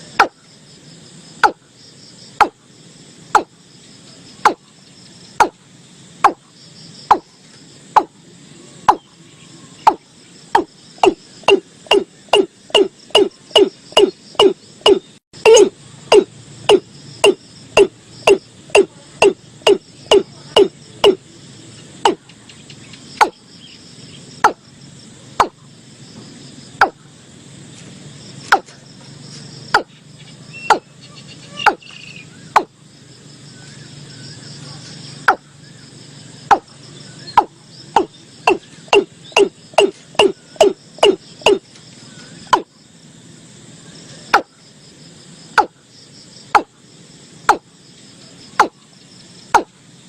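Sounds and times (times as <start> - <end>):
faint insect chorus: 0.0 - 50.0
bird calling low loud notes: 8.0 - 21.2, 29.7 - 32.8, 33.5 - 42.7.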